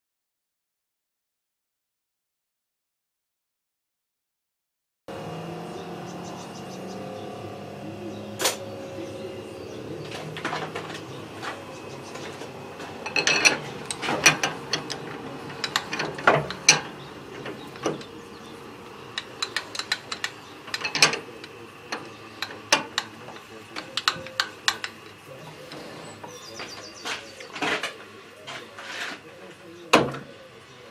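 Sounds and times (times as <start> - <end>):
machine hum: 5.1 - 30.9
metallic clicks and clinks: 19.2 - 25.0.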